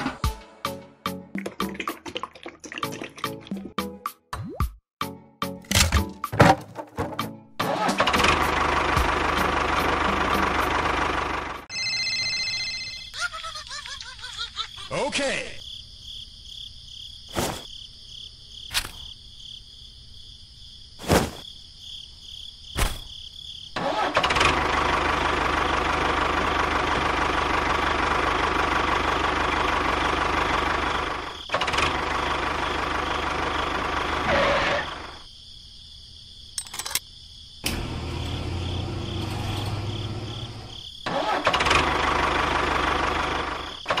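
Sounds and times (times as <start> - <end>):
engine running loud: 8.0 - 11.6, 23.9 - 35.2, 37.7 - 43.7
low engine idle hum: 8.2 - 11.7, 23.9 - 34.3, 37.6 - 43.8.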